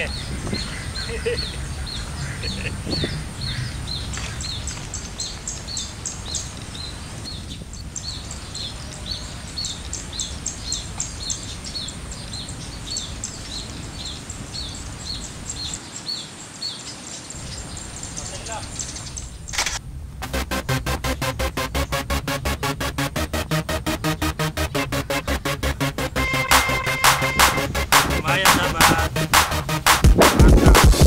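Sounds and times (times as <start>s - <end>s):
bird chirping: 0.0s - 19.8s, 20.6s - 29.8s
low wind rumble: 0.0s - 21.9s
steady high hiss: 0.0s - 31.0s
high ticking: 20.2s - 31.0s.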